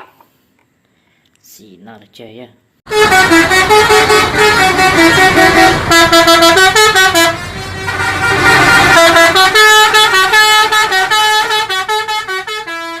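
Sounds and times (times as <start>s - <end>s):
bus musical horn tune: 2.9s - 13.0s.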